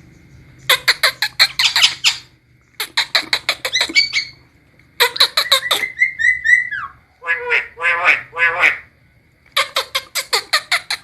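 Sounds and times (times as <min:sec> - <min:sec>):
bird harsh clicking chatter: 0:00.6 - 0:04.4, 0:09.5 - 0:11.0.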